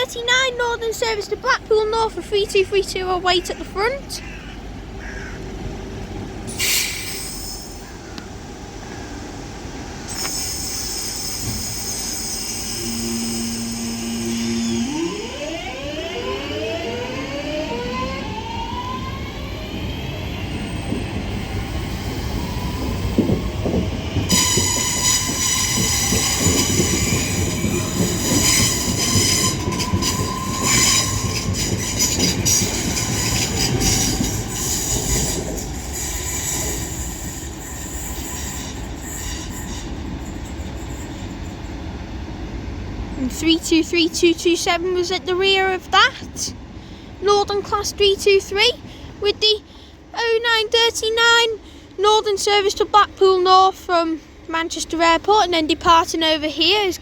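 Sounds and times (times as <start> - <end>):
train wheels squealing and clattering: 6.4 - 8.4, 10.0 - 41.8
electric train motors whining: 10.0 - 41.2.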